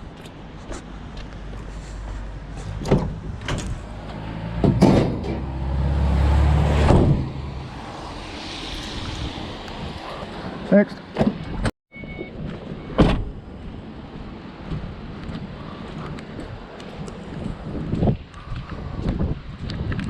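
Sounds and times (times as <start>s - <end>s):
sharp knocks and bangs: 4.5s - 5.6s, 6.7s - 7.5s.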